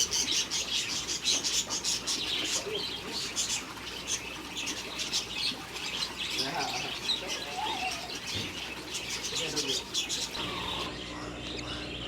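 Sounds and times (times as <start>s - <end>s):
lower warbling bird calls: 0.0s - 11.0s
lovebirds chirping: 0.0s - 12.0s.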